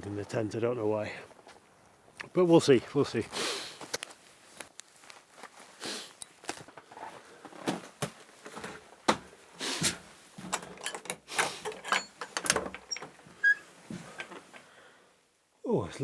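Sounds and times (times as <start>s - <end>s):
footsteps and knocks inside: 6.6s - 14.6s
wooden door opening: 9.9s - 14.7s.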